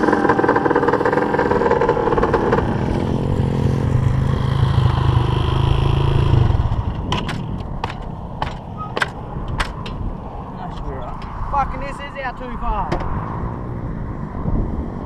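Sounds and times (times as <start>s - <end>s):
dirt bike engine running: 0.0s - 8.6s.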